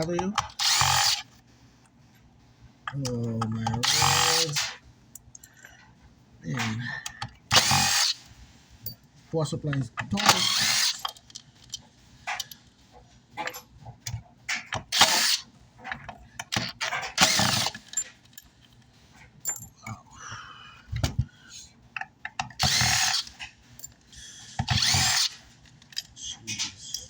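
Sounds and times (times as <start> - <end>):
power drill driving screws: 0.4 - 1.3, 3.8 - 4.7, 7.5 - 8.2, 10.2 - 11.1, 14.8 - 15.5, 16.5 - 17.9, 22.6 - 23.5, 24.6 - 25.5.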